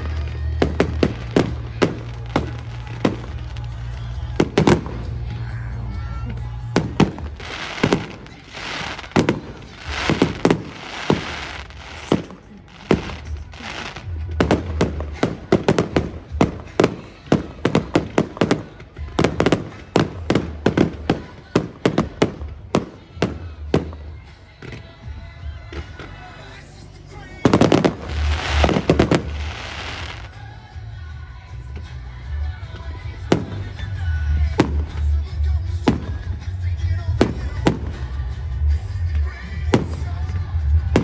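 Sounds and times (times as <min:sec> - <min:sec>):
fireworks hissing: 0:00.0 - 0:24.5, 0:25.7 - 0:30.5
fireworks bangs and crackles: 0:00.0 - 0:41.0.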